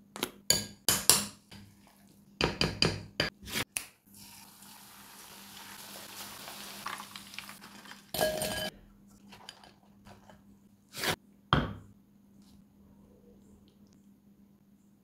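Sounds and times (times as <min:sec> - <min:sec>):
chicken sizzling in oil: 0:04.2 - 0:08.2.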